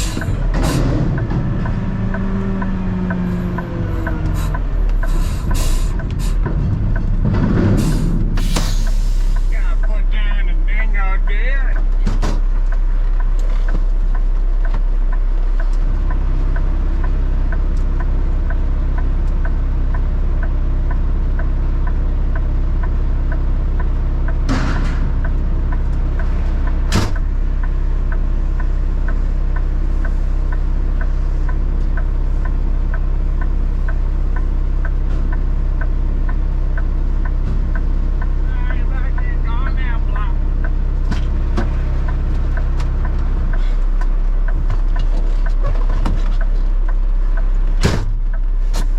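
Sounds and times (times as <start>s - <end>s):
truck engine running: 0.0s - 48.9s
light regular ticking: 12.5s - 24.5s, 25.2s - 45.6s, 46.2s - 48.6s.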